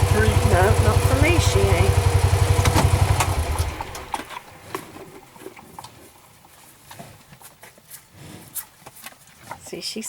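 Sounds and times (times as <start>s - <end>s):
farm vehicle engine idling: 0.0s - 5.0s.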